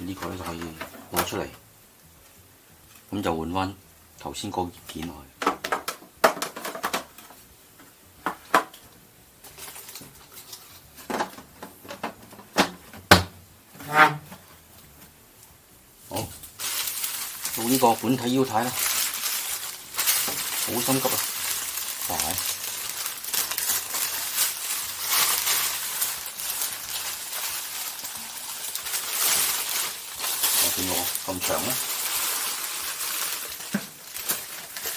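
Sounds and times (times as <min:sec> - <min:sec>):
packaging rustling and crinkling: 0:09.4 - 0:13.1, 0:16.0 - 0:34.9.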